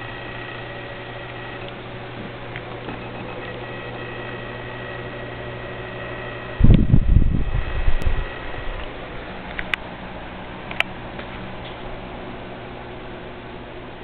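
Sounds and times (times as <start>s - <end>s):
faint high steady tones: 0.0s - 9.3s
steady low hum: 0.0s - 14.0s
loud low rumbling: 6.6s - 9.3s.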